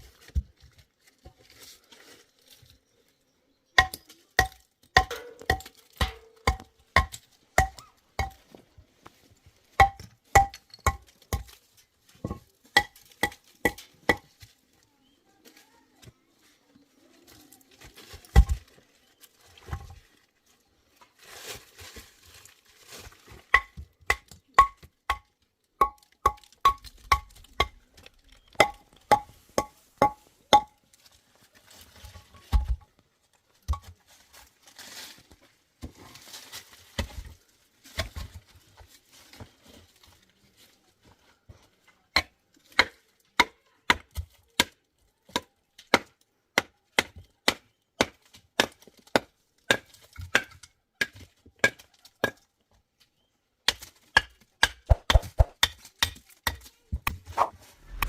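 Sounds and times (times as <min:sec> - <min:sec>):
metal scraping: 0:57.2 - 0:58.0.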